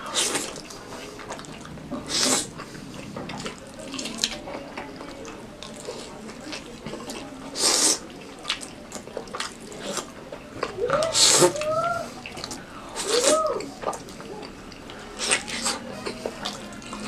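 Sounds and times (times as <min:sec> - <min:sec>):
wet chewing: 0:00.0 - 0:17.0.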